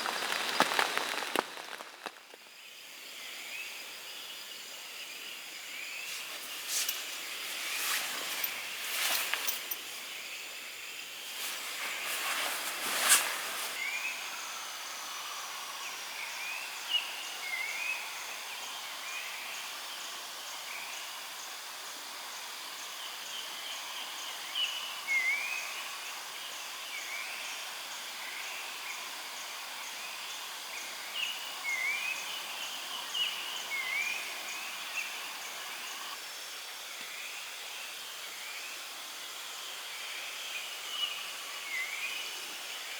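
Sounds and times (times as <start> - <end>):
insect pulsing faintly: 0.0 - 15.8
steady hiss: 0.0 - 42.9.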